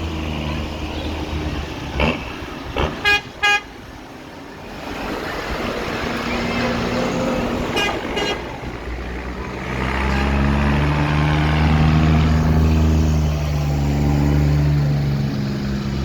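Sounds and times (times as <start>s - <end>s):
tractor diesel engine passing: 0.0s - 16.0s
horn toots: 2.0s - 3.8s, 7.6s - 8.7s.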